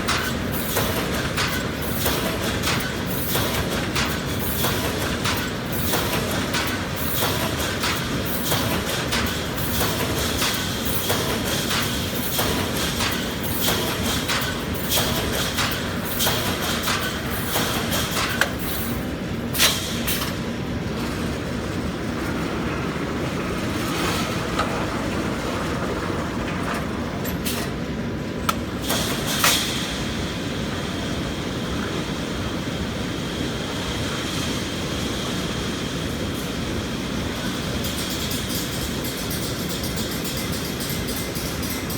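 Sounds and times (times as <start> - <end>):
welding machine clatter: 0.0 - 30.0, 37.4 - 41.9
sharp metallic clacks: 37.8 - 41.9.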